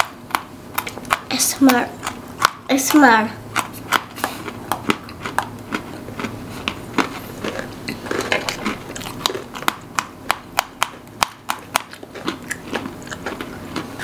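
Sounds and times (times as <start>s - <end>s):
crunchy snack chewing: 3.6s - 14.0s.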